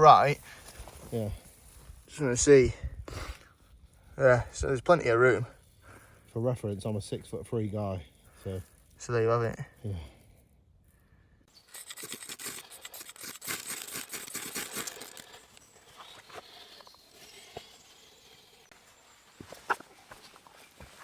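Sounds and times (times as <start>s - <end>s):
dry leaves and twigs rustling: 0.0s - 2.4s, 10.3s - 21.0s.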